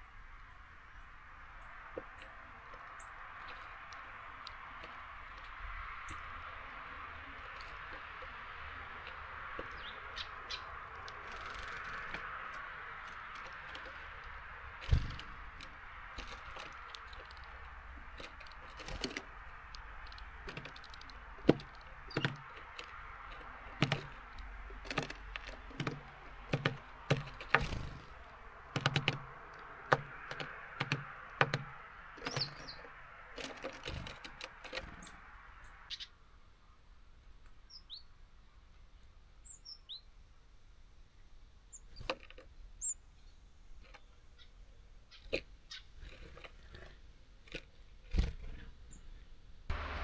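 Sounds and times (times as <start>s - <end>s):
beaks tapping on bird feeder: 2.7s - 35.2s
high bird chirps: 32.2s - 33.0s.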